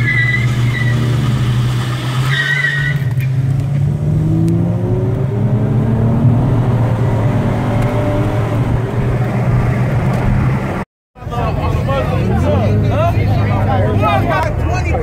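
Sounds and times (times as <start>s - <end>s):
car engine accelerating: 0.0s - 10.9s.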